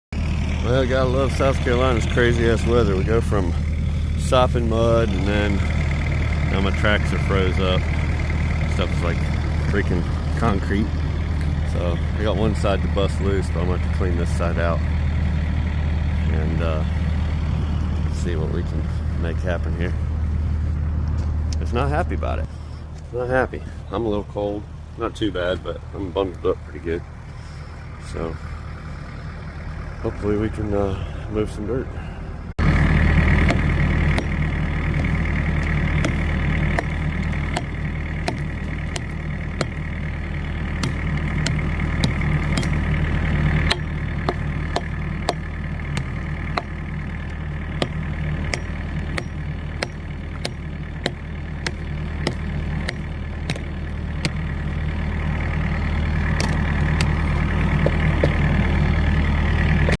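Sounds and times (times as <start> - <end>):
diesel engine running: 0.0 - 60.0
sharp clicks and knocks: 33.4 - 39.9, 40.8 - 42.9, 43.6 - 54.4, 56.4 - 58.5.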